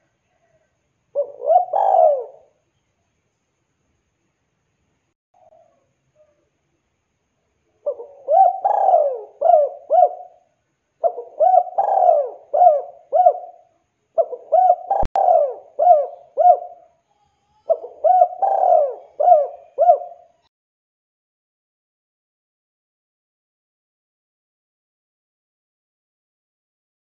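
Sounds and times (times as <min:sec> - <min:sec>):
dove cooing: 0:01.2 - 0:02.6, 0:07.8 - 0:20.4.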